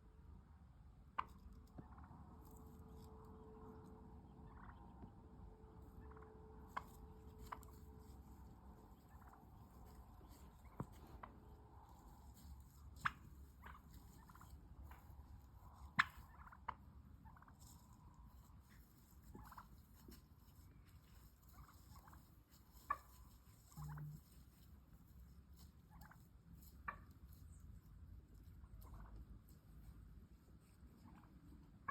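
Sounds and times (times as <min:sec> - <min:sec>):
turkey clucking: 0:01.2 - 0:02.6, 0:04.3 - 0:05.0, 0:05.9 - 0:08.1, 0:08.8 - 0:20.1, 0:21.1 - 0:24.4, 0:25.8 - 0:27.2, 0:28.8 - 0:29.2, 0:31.0 - 0:31.9
turkey purring: 0:21.5 - 0:24.4.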